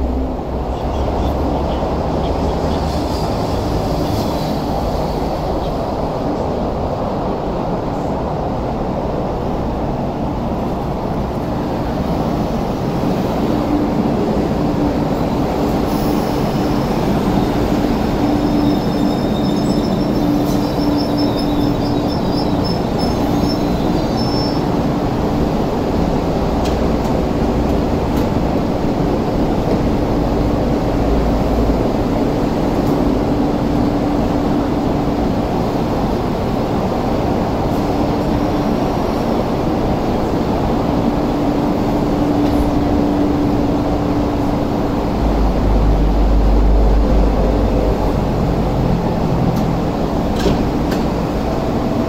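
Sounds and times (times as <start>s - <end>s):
electric train rumble and hum: 0.0s - 52.0s
high brake squeal: 18.4s - 24.7s.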